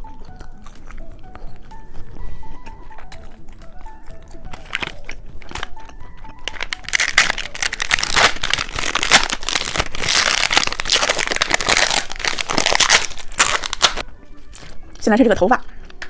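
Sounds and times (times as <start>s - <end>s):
plastic packaging crinkling: 4.5s - 14.7s.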